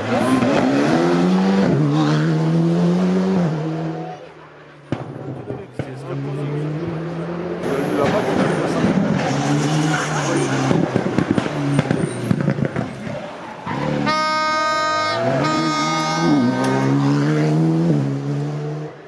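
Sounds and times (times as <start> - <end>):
rally car engine revving: 0.0 - 19.0
high piercing tone: 14.1 - 17.0.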